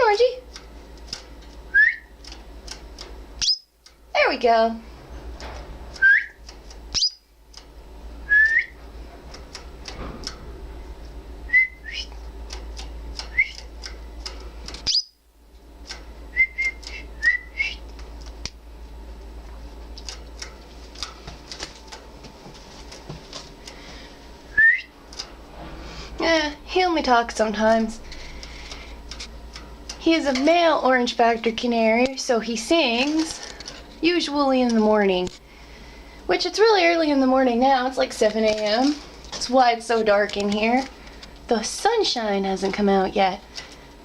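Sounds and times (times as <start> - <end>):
canary tweet calls: 3.4 - 3.7, 6.9 - 7.2, 14.8 - 15.2.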